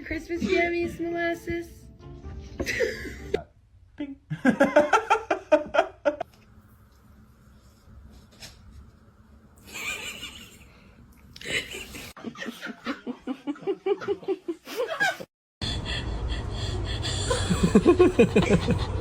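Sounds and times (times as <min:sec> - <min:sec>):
person laughing: 0:02.6 - 0:03.4, 0:09.6 - 0:10.8, 0:11.4 - 0:15.3, 0:17.0 - 0:19.0.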